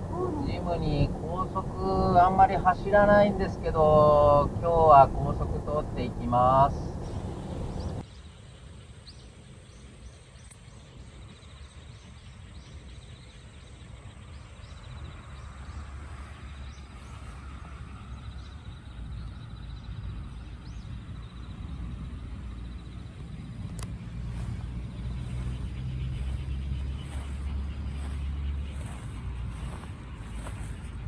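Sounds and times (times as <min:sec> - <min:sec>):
bird chirps: 0:00.0 - 0:08.0, 0:23.8 - 0:31.0
vehicle rumble: 0:00.0 - 0:08.0, 0:20.0 - 0:31.0.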